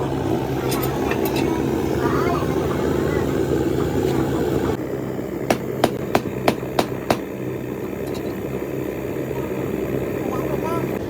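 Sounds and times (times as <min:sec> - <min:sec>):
engine hum: 0:00.0 - 0:11.0
sharp knocks: 0:05.5 - 0:07.3.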